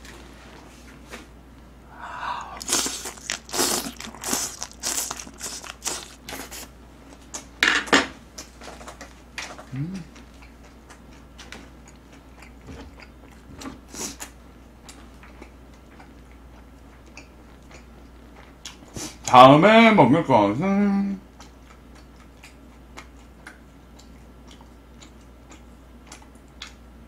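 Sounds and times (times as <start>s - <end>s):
person humming: 1.9s - 2.8s, 9.7s - 10.2s
wet smacking chewing: 2.4s - 6.7s, 9.5s - 19.2s, 21.3s - 26.8s.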